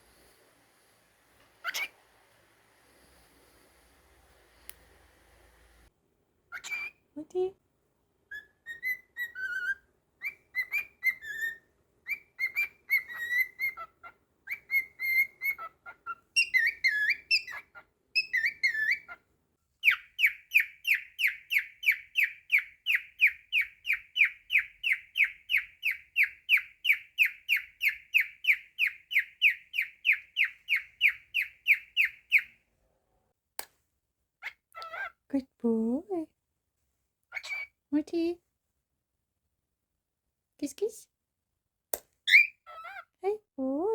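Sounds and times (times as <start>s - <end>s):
cockatiel whistling: 1.6s - 1.9s, 6.5s - 7.0s, 8.3s - 13.9s, 14.5s - 19.2s, 42.3s - 42.9s.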